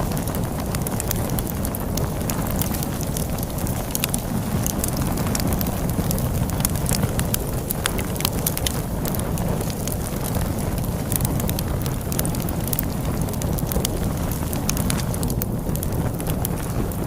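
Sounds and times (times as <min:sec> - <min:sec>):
log fire crackling: 0:00.0 - 0:17.0
storm wind rumbling: 0:00.0 - 0:17.0.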